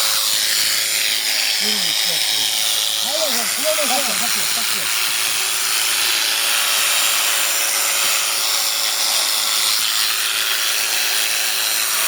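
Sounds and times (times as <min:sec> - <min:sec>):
electric sheep shears buzzing: 0:00.0 - 0:12.0.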